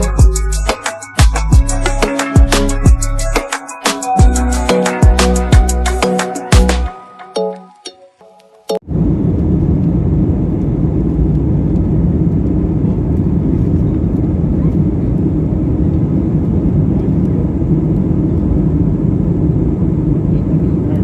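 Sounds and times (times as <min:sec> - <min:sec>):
airliner cabin jet engine rumble: 0:08.9 - 0:21.0.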